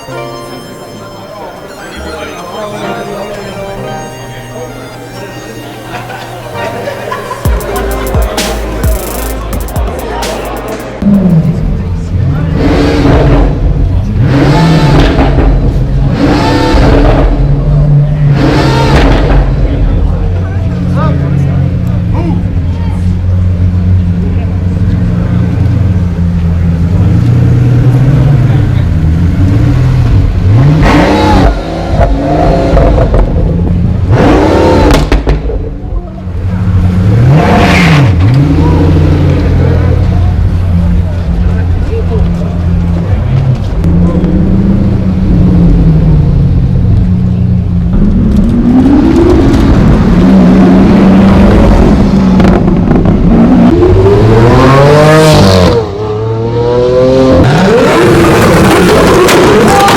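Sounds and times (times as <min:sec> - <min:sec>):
car engine revving: 0:04.4 - 0:59.9.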